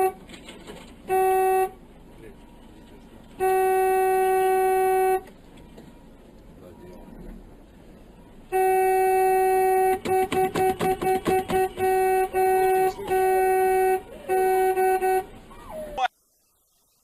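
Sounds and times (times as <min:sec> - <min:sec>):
car horn blasts and toots: 0:00.0 - 0:00.2, 0:01.0 - 0:01.8, 0:03.4 - 0:05.3, 0:08.5 - 0:15.3.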